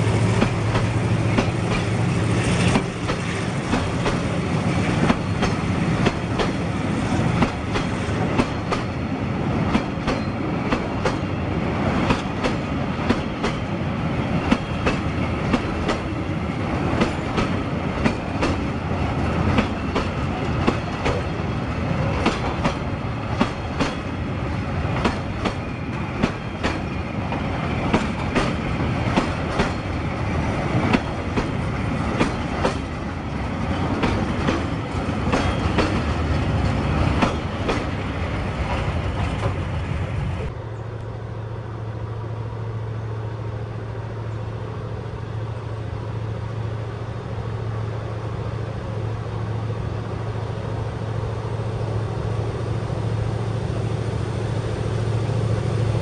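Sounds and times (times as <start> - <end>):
wheels clacking over rail joints: 0.0 - 40.5
wheels rumbling on rail: 0.0 - 56.0.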